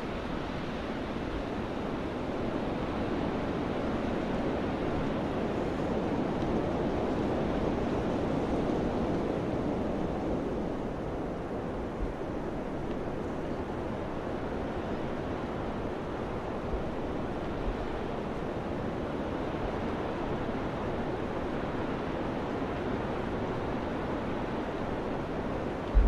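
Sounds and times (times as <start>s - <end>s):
wind blowing: 25.7s - 26.0s.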